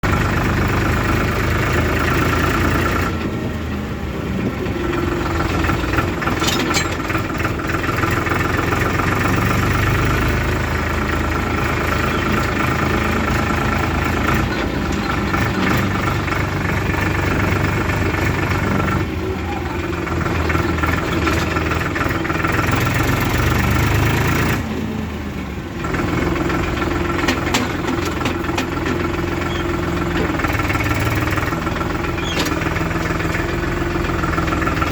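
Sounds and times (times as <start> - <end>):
diesel engines running: 0.0 - 34.9
sharp clanks: 6.1 - 7.5, 27.0 - 31.4.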